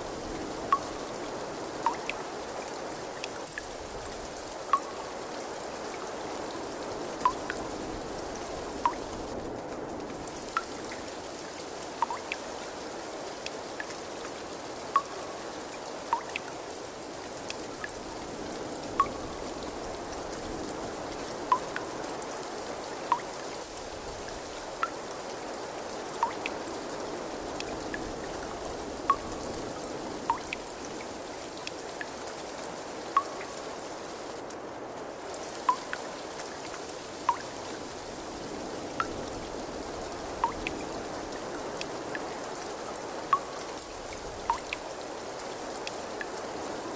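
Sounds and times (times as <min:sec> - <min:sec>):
water trickling: 0:00.0 - 0:46.9
drops plinking into water: 0:01.8 - 0:02.2, 0:04.7 - 0:05.1, 0:08.8 - 0:09.0, 0:12.0 - 0:12.4, 0:15.0 - 0:15.3, 0:16.1 - 0:16.5, 0:19.0 - 0:19.2, 0:21.5 - 0:21.8, 0:26.2 - 0:26.5, 0:30.3 - 0:30.6, 0:35.7 - 0:36.0, 0:37.3 - 0:37.5, 0:43.3 - 0:43.6, 0:44.5 - 0:44.8.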